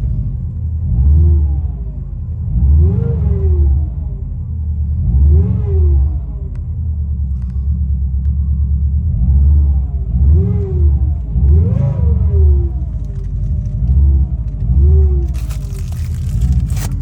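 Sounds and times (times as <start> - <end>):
car engine revving in blips: 0.0 - 17.0.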